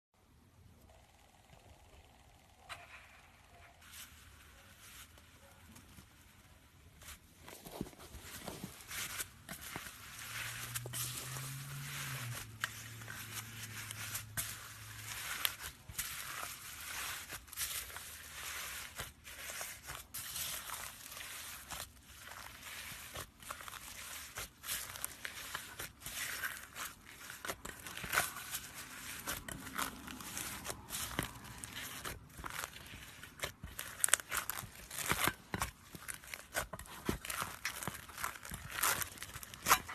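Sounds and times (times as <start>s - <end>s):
slime beads crackling and popping: 8.8s - 39.9s.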